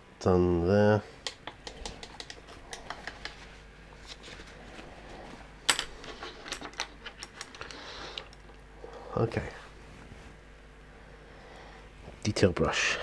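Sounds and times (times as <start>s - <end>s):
small clicks and taps of tools: 1.2s - 3.4s.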